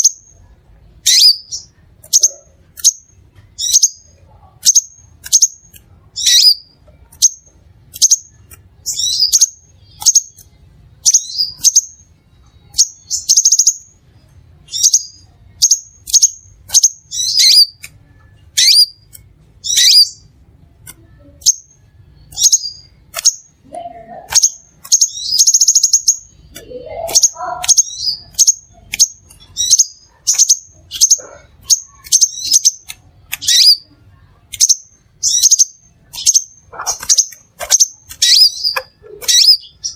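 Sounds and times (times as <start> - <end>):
sunbird chirping: 12.6 - 13.9, 21.4 - 33.9.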